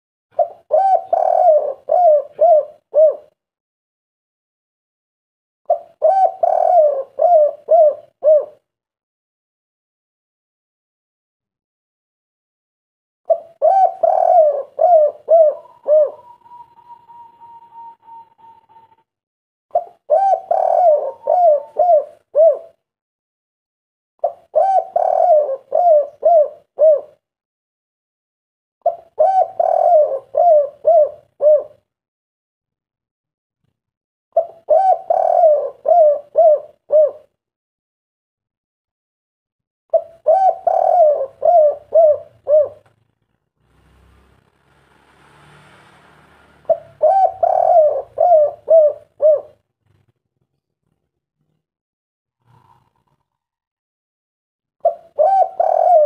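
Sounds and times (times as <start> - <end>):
dove cooing: 0.4 - 3.4, 5.7 - 8.6, 13.3 - 19.0, 19.7 - 22.8, 24.2 - 27.2, 28.8 - 31.9, 34.4 - 37.3, 39.9 - 42.9, 46.7 - 49.6, 52.4 - 53.4, 54.8 - 56.0
faint hiss: 43.7 - 46.7.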